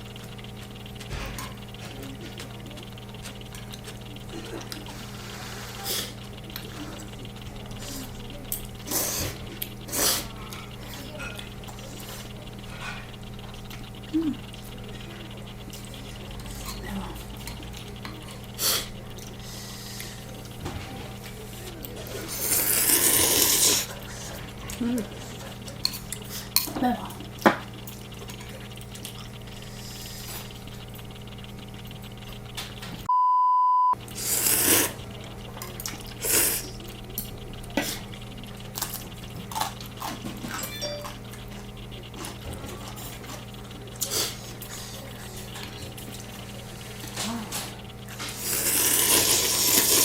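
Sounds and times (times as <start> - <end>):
utensils clicking against bowl: 0.0 - 33.1, 34.0 - 50.0
steady low hum: 0.0 - 33.2, 33.8 - 50.0
noodle slurp: 8.8 - 11.0, 22.0 - 24.5, 34.1 - 35.1, 35.8 - 36.8, 48.2 - 50.0
single-tone beep: 33.1 - 34.0.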